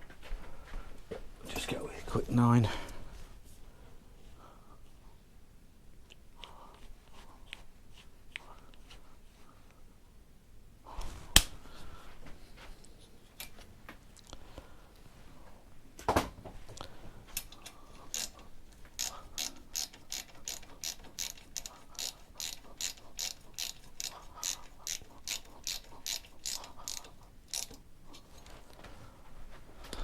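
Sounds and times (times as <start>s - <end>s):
ratchet wrench clicking: 18.1s - 18.4s, 19.0s - 27.8s.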